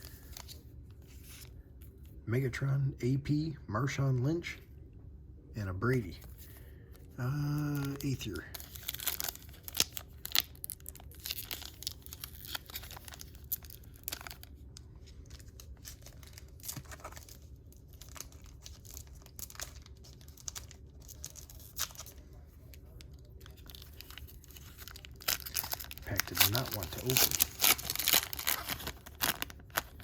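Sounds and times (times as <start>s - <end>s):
wrapper crinkling and tearing: 7.3s - 30.0s.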